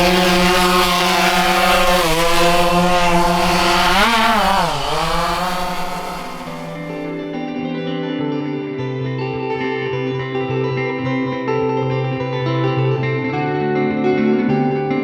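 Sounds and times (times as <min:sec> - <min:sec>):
drone propellers buzzing: 0:00.0 - 0:07.3.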